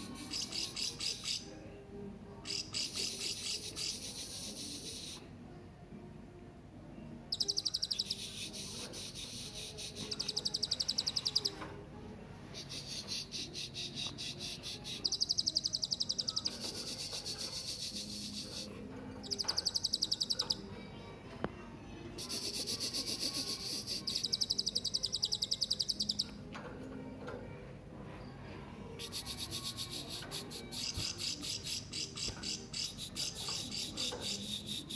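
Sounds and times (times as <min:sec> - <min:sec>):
parrot chirping trills: 0:07.3 - 0:11.6, 0:19.3 - 0:20.7, 0:22.2 - 0:26.4.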